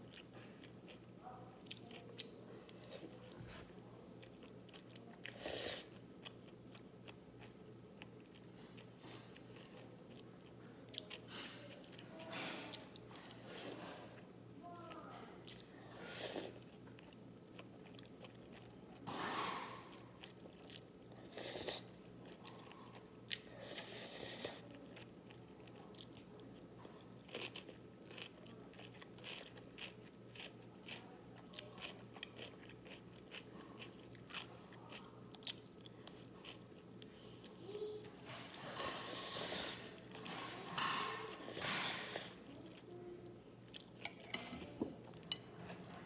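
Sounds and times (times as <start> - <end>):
crunchy chewing: 19.4 - 37.1.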